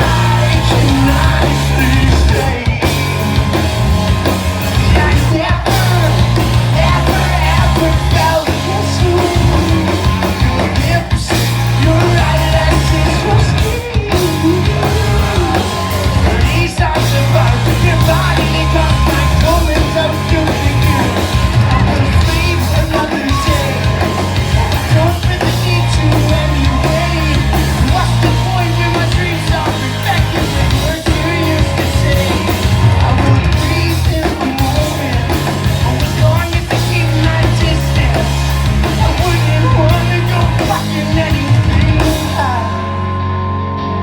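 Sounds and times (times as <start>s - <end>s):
rock band playing live: 0.0s - 44.0s.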